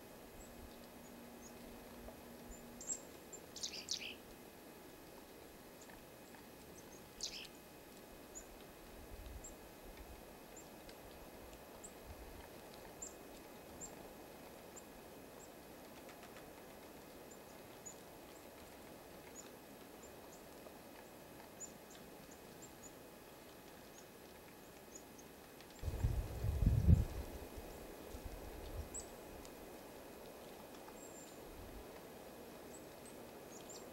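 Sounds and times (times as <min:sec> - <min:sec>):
steady outdoor hiss: 0:00.0 - 0:33.9
small birds chirping: 0:02.4 - 0:04.3, 0:05.8 - 0:07.6, 0:12.9 - 0:14.0, 0:21.5 - 0:23.0, 0:30.4 - 0:31.5, 0:32.6 - 0:33.9.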